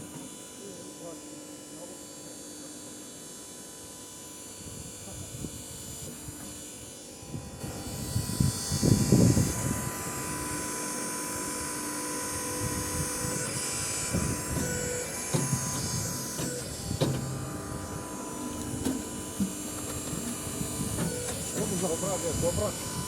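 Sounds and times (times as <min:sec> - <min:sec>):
machine humming: 0:07.6 - 0:23.0
sharp knocks: 0:14.2 - 0:17.5.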